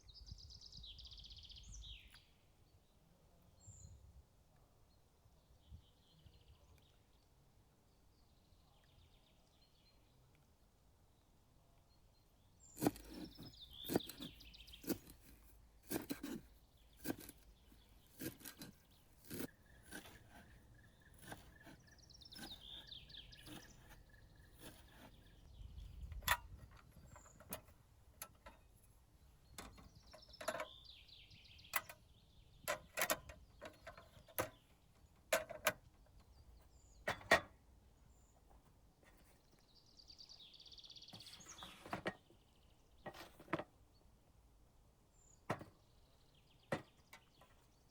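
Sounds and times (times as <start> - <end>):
birds chirping: 0.0 - 4.1, 11.2 - 44.1.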